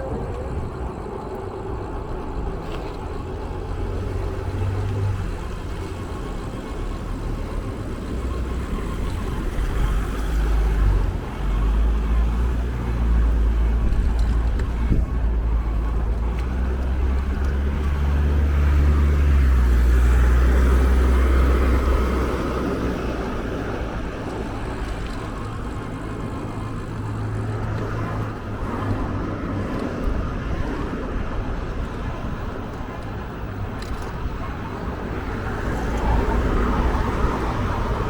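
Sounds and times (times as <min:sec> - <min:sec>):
motor vehicle running: 0:00.0 - 0:38.0.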